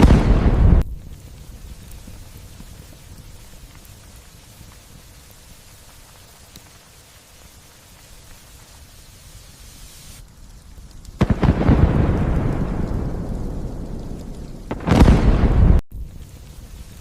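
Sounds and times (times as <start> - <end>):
thunder clap rumbling: 0.0 - 1.0, 11.2 - 15.8
light steady rain: 0.0 - 17.0.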